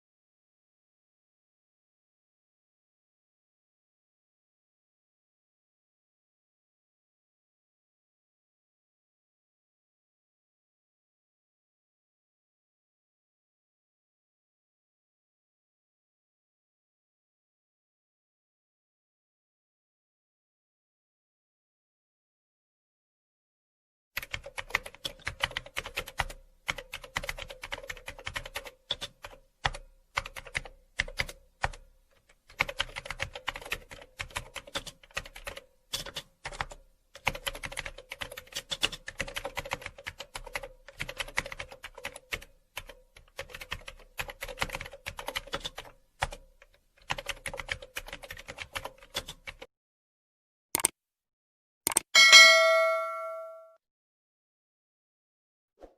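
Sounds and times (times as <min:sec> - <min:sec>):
rapid keyboard typing: 0:24.2 - 0:49.7
ringing bell ding: 0:52.2 - 0:53.8.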